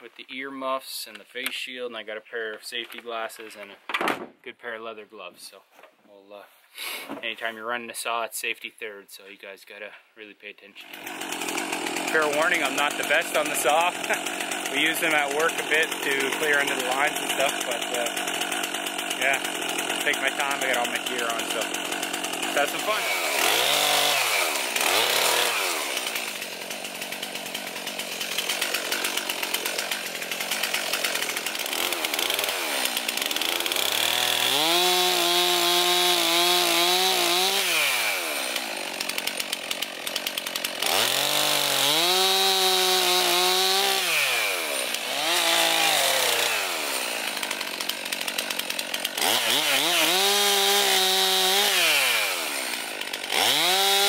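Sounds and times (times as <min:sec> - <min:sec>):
chainsaw cutting wood: 0:10.8 - 0:54.0.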